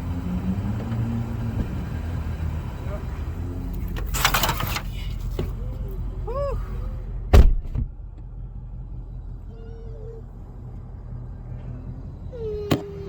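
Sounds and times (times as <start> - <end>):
car door slamming: 7.3 - 7.9, 12.7 - 13.0.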